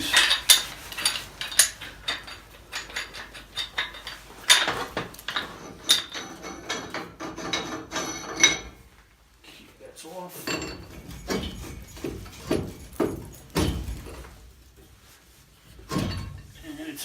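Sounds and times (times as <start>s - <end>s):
wrench and metal fittings clinking: 0.0s - 8.8s
metal clanks: 0.0s - 9.0s, 10.4s - 15.0s, 15.7s - 16.6s.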